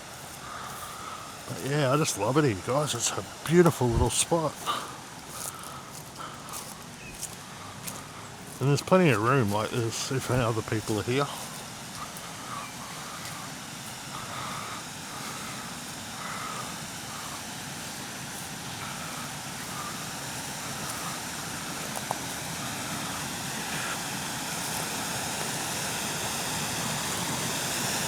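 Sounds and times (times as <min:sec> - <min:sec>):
water tumbling over waterfall: 0:00.4 - 0:28.0.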